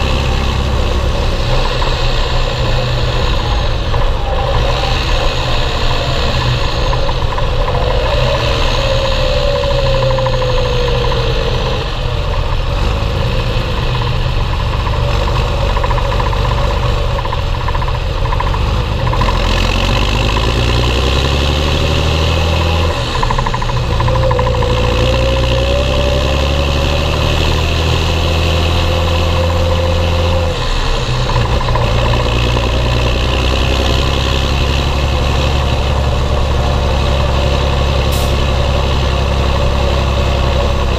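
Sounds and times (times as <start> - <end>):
faint whine: 0.0 - 12.6
tractor diesel engine running: 0.0 - 40.9.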